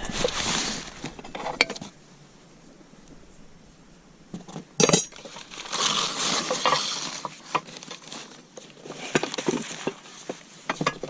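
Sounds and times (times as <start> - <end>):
rustling and scraping: 0.0 - 11.0
sharp metal clank: 4.8 - 5.3.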